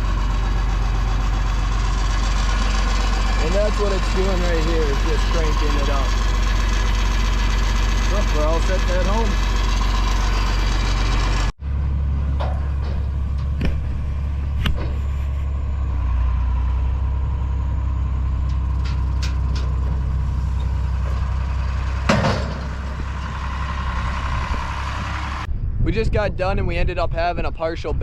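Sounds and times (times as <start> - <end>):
tractor diesel engine droning: 0.0 - 25.5
loud clunk: 12.3 - 15.2, 22.0 - 23.3
knocks and rattles: 22.0 - 24.7.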